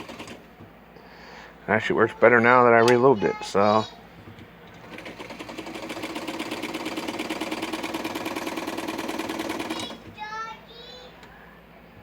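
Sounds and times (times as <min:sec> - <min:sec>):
sewing machine clattering: 0:00.0 - 0:00.4, 0:04.7 - 0:10.1.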